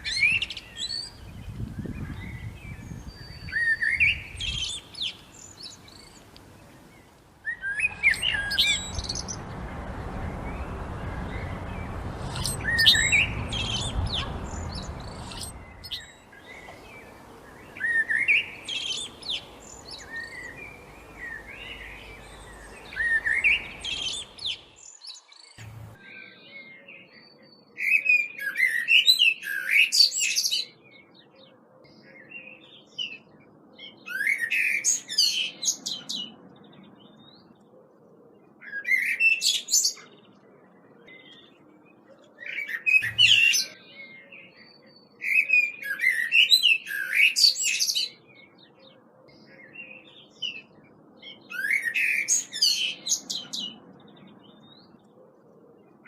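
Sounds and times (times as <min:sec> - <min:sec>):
songbirds singing: 0:00.0 - 0:56.0
low rumble: 0:08.7 - 0:15.9, 0:25.6 - 0:26.0.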